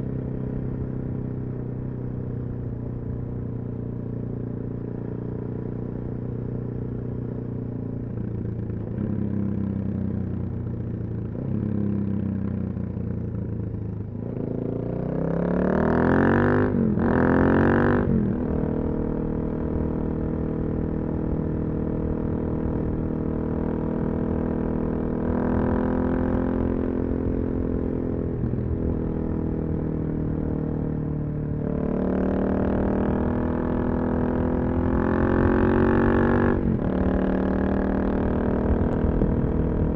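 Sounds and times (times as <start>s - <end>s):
motorcycle engine revving: 14.1s - 39.9s.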